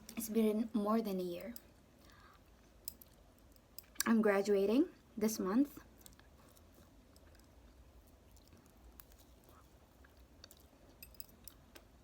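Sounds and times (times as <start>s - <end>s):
chewing noodles: 5.9s - 12.0s.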